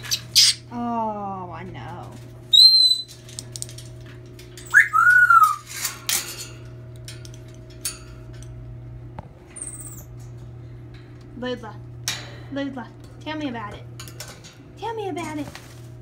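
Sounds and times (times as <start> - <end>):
monkey whistle-like calls: 2.5 - 3.1, 4.7 - 5.6.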